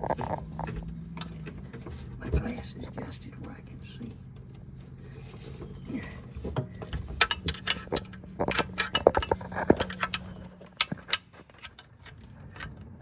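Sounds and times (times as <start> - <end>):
low steady hum: 0.0 - 13.0
metal tools clinking on metal: 6.6 - 12.7.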